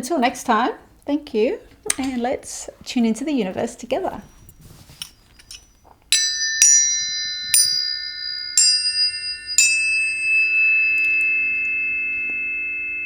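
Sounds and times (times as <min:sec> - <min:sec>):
struck bell-like metal tones: 0:04.2 - 0:13.0.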